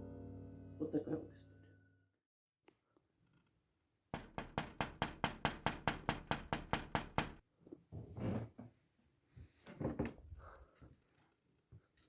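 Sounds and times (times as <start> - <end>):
rapid knocking: 4.2 - 7.4.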